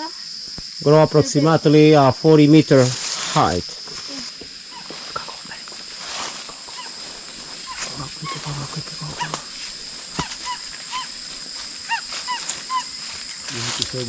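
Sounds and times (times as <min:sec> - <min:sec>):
high insect buzz: 0:00.0 - 0:14.0
chirping animal calls: 0:04.7 - 0:05.7, 0:06.5 - 0:13.5.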